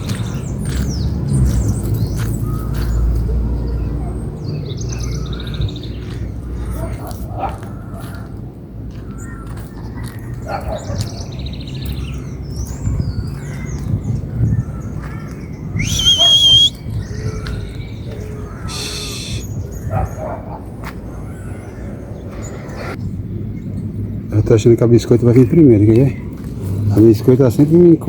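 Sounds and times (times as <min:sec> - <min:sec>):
wild birds chirping: 0:00.0 - 0:27.5
loud whistled bird call: 0:15.7 - 0:17.0, 0:18.6 - 0:19.6
harsh buzzy bird call: 0:15.8 - 0:16.8, 0:18.6 - 0:19.5.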